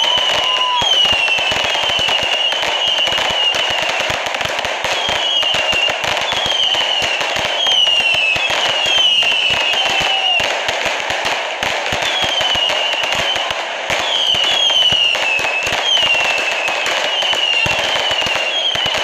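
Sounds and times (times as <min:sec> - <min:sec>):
firework whistles: 0:00.0 - 0:10.9, 0:11.6 - 0:19.0
fireworks crackling and banging: 0:00.0 - 0:19.0.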